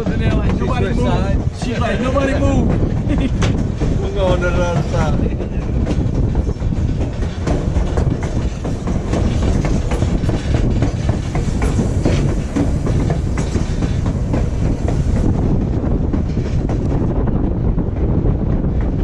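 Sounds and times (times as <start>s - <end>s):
train rumble: 0.0s - 19.0s
wheels clicking over rail joints: 0.0s - 19.0s.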